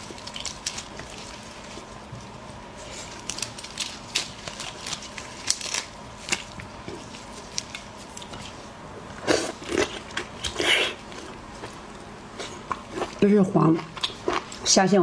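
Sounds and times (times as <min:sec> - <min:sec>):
prawn shell cracking and crunching: 0:00.0 - 0:02.0, 0:02.8 - 0:08.6.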